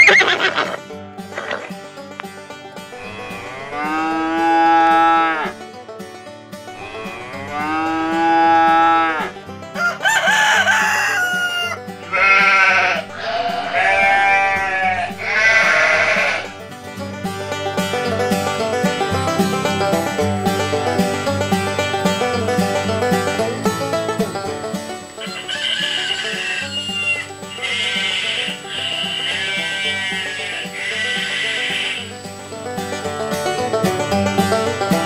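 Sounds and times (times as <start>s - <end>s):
long drawn-out animal calls: 0.0s - 1.8s, 2.9s - 5.6s, 6.7s - 9.4s, 11.3s - 16.7s, 21.7s - 33.7s
background music: 0.0s - 35.0s
sheep bleating: 2.9s - 5.5s, 6.8s - 9.3s, 12.0s - 16.6s, 25.2s - 32.2s
rooster crowing: 6.8s - 16.6s, 25.2s - 32.2s.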